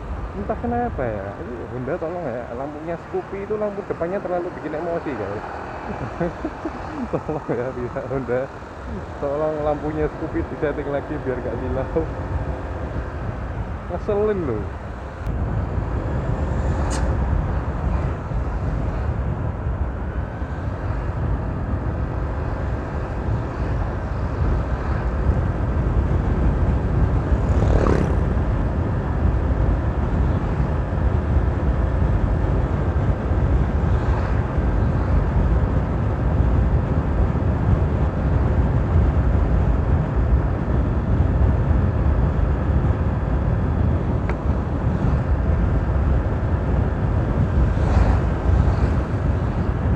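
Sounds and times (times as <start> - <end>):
thin steady fan whine: 0.0 - 27.4
wind and road rumble: 0.0 - 49.9.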